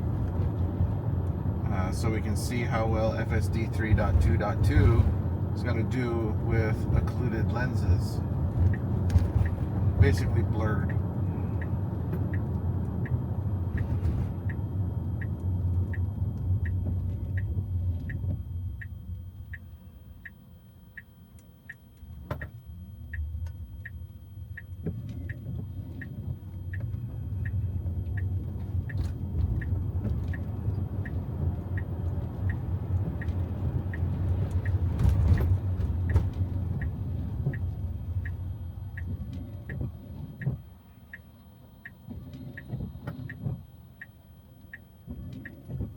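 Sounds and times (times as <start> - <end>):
tyre and road rumble: 0.0 - 18.6, 24.8 - 40.8
turn signal ticking: 0.0 - 45.9.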